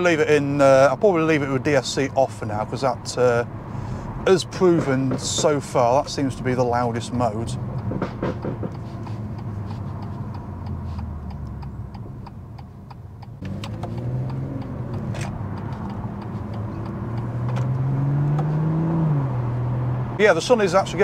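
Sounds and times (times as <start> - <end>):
turn signal ticking: 0.0 - 21.0
car engine accelerating: 4.7 - 21.0.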